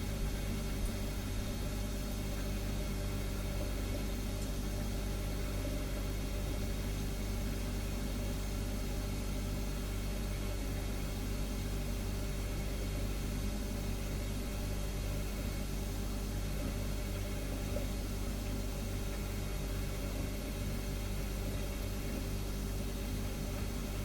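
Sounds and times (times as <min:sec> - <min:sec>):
refrigerator humming: 0:00.0 - 0:24.0.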